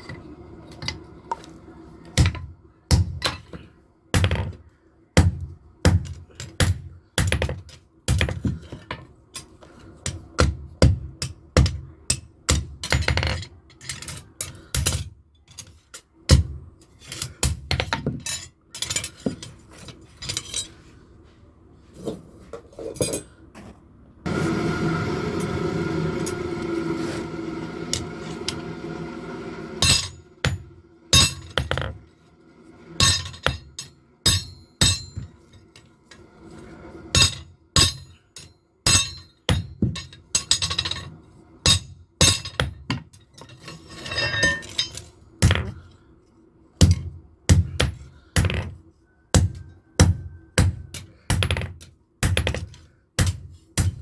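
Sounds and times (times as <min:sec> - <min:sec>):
noisy mechanical sound: 0:00.0 - 0:54.0
hammer striking metal on anvil: 0:29.8 - 0:31.8, 0:33.0 - 0:35.3, 0:37.1 - 0:41.0, 0:41.6 - 0:42.8, 0:49.3 - 0:51.6, 0:52.2 - 0:54.0.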